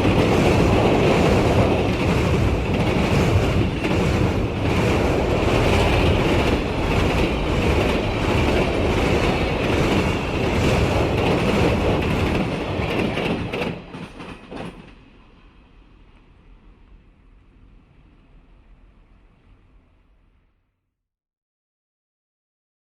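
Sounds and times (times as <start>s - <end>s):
train passing: 0.0s - 20.5s.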